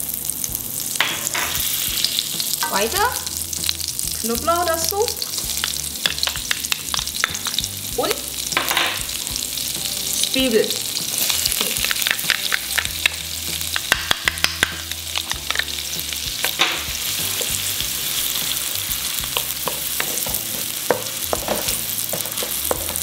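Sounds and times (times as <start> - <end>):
garlic and onion sizzling in oil: 0.0 - 23.0
sharp taps and clicks: 5.6 - 7.6, 11.6 - 15.7.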